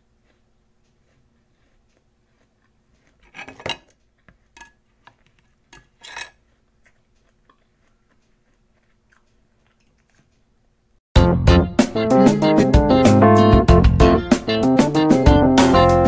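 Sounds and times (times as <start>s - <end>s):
person crunching apple: 0.0s - 4.6s, 6.4s - 10.6s
faint chewing clicks: 0.1s - 3.3s, 6.4s - 10.8s.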